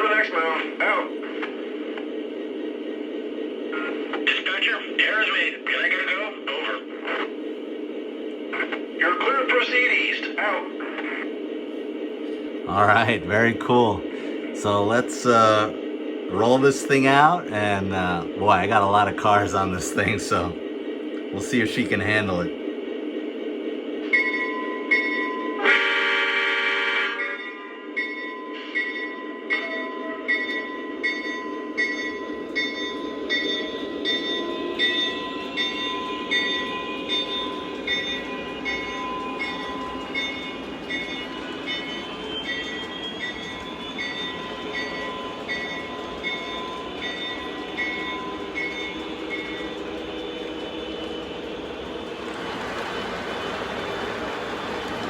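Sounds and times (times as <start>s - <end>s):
bell ringing: 30.3s - 55.0s
diesel engine sound: 44.0s - 55.0s.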